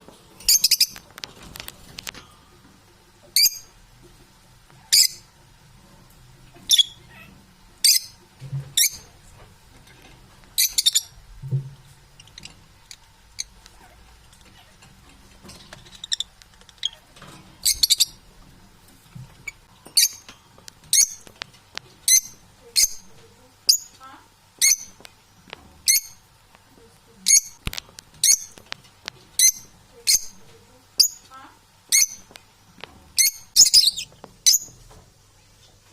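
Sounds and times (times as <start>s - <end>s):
parrots high-pitched calls: 0.4s - 1.0s, 3.4s - 3.7s, 4.8s - 5.3s, 6.6s - 8.2s, 10.6s - 11.2s, 15.8s - 18.2s, 20.9s - 21.3s, 22.0s - 24.0s, 24.6s - 25.0s, 25.9s - 26.2s, 28.2s - 28.6s, 29.4s - 30.4s, 31.9s - 32.3s, 33.2s - 34.7s
faint parrot chatter: 6.6s - 8.1s, 12.2s - 15.0s.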